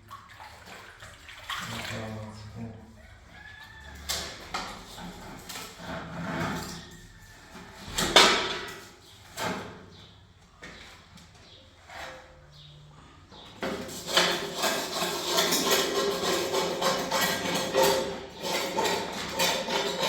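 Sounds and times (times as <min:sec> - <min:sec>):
objects knocking and scraping: 0:03.9 - 0:09.9, 0:13.4 - 0:20.0.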